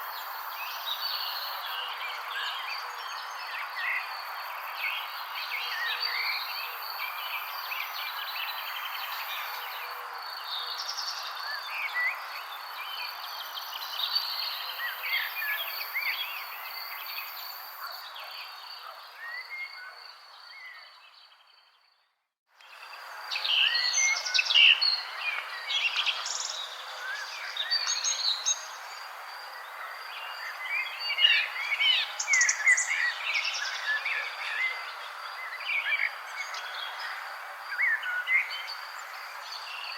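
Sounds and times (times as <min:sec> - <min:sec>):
birds chirping and trilling: 0:22.8 - 0:39.9.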